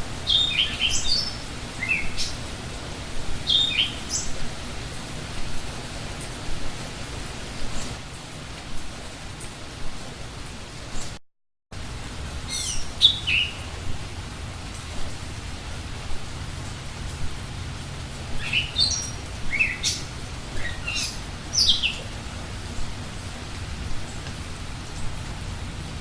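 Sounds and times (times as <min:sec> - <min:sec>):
steady rain-like hiss: 0:00.0 - 0:26.0
small birds chirping: 0:00.2 - 0:02.6, 0:03.3 - 0:06.4, 0:12.4 - 0:16.1, 0:18.3 - 0:23.0.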